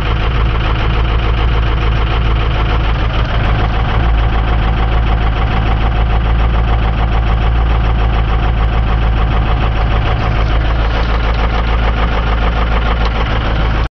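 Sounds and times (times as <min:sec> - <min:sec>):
diesel engine idling: 0:00.0 - 0:13.9.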